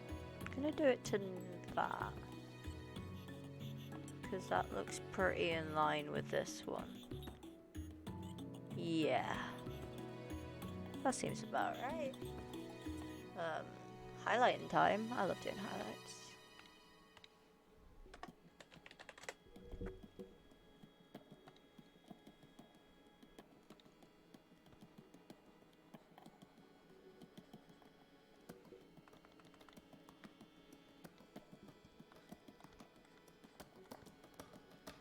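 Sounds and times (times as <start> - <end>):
computer keyboard clicking: 18.1 - 20.3, 21.1 - 35.0.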